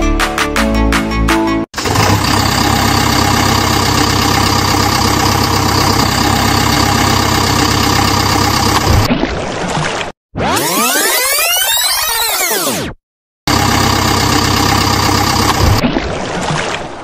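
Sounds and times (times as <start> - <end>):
diesel engine idling: 1.8 - 9.1, 13.5 - 15.8.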